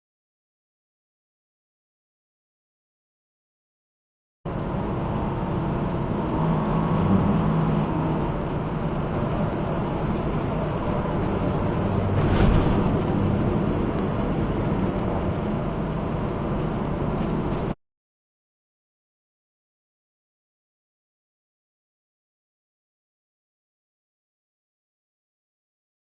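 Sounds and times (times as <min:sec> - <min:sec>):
car road and engine noise: 0:04.5 - 0:17.8.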